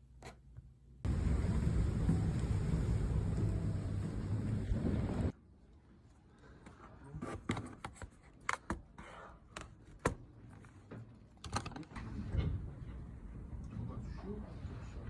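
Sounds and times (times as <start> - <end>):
loud rumbling: 1.1 - 5.3.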